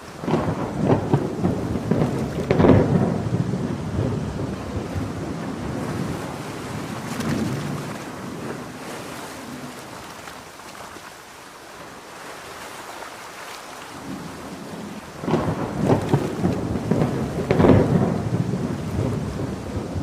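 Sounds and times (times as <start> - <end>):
rolling thunder rumble: 0.0 - 10.0, 14.0 - 20.0
heavy rain: 0.0 - 20.0.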